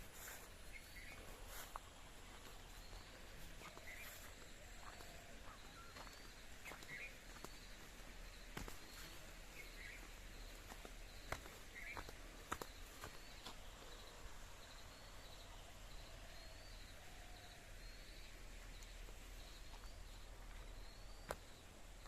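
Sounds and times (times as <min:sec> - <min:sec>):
faint birdsong: 0:00.0 - 0:22.0.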